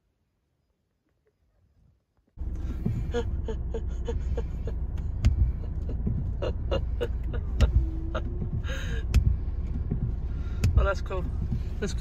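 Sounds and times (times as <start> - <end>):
car engine idling: 2.3 - 12.0
sharp taps: 9.0 - 11.7.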